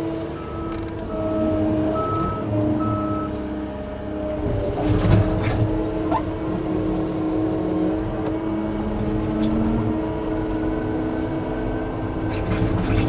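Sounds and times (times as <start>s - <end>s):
backup alarm beeping: 0.4s - 3.4s.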